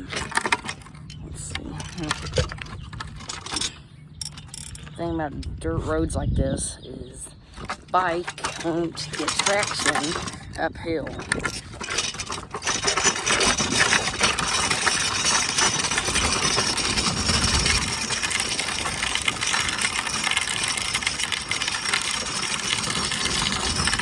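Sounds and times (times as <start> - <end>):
bike tyres crunching on dirt: 11.5 - 24.0.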